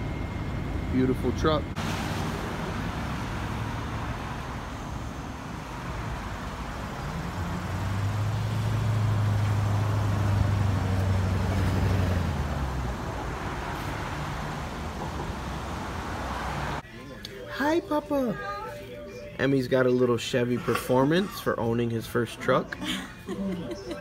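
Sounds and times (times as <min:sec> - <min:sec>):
vehicle engine hum: 0:00.0 - 0:16.9
outdoor traffic noise: 0:00.0 - 0:24.0.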